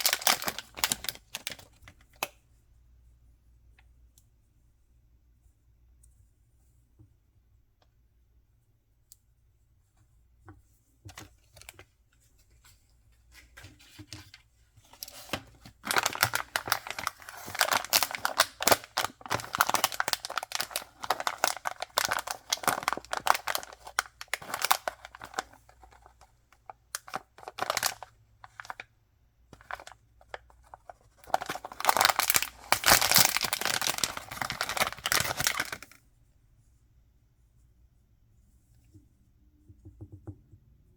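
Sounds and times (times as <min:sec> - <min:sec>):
packaging tearing and crinkling: 0:00.0 - 0:01.8, 0:14.9 - 0:26.2, 0:26.9 - 0:28.8, 0:29.6 - 0:36.0
soft handling sounds: 0:00.0 - 0:40.2.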